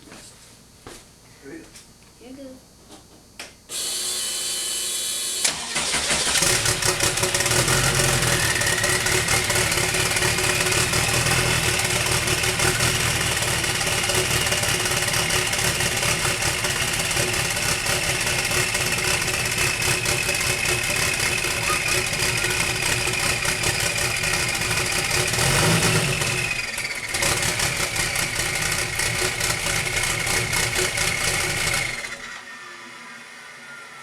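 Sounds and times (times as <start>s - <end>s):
starter motor cranking: 5.0s - 15.6s
high engine whine: 5.0s - 34.0s
car engine idling: 5.5s - 32.2s.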